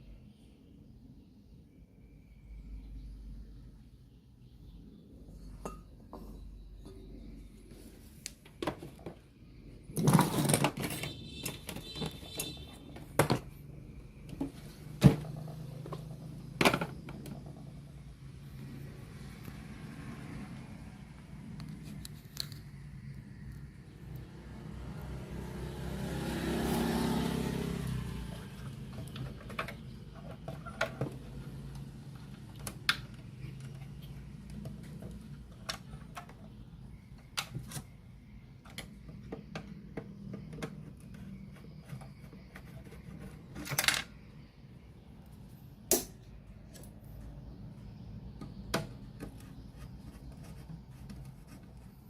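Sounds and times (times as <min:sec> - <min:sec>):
vehicle passing: 0:18.2 - 0:21.5, 0:24.0 - 0:29.2.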